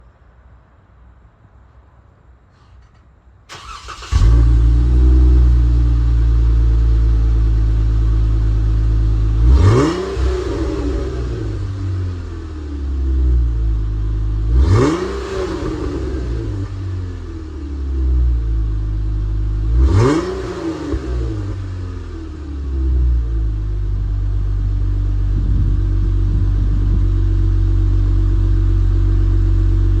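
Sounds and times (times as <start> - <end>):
starter cranking engine: 3.5 - 4.2
car engine idling: 3.5 - 14.8, 15.4 - 30.0
engine revving: 9.3 - 12.0, 14.5 - 17.0, 19.6 - 23.0.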